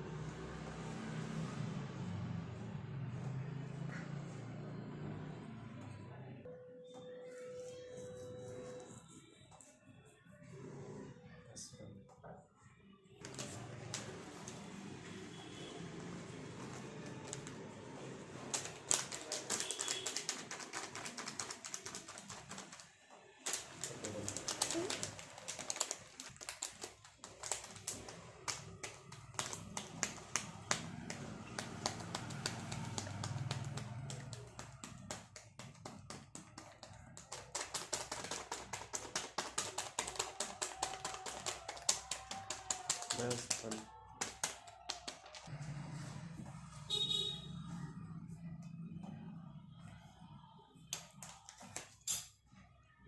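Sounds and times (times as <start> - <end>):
rapid tapping: 18.4 - 45.5.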